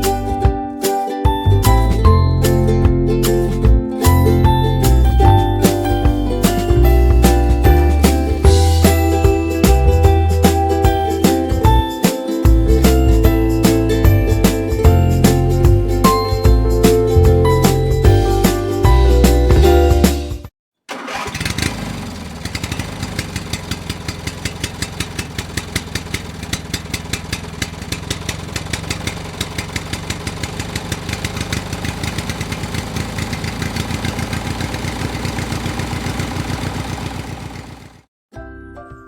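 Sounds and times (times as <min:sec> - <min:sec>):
small engine running: 0:20.9 - 0:38.1.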